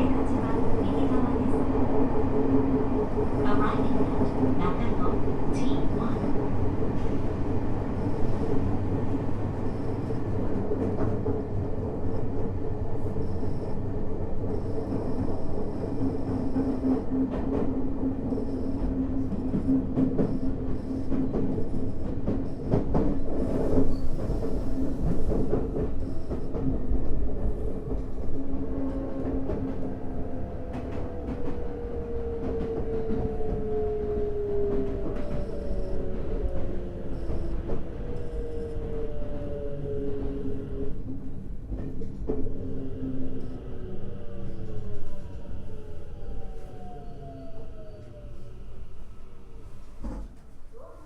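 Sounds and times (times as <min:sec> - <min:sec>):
wheels rumbling on rail: 0:00.0 - 0:50.9
clacks over rail joints: 0:30.6 - 0:33.7.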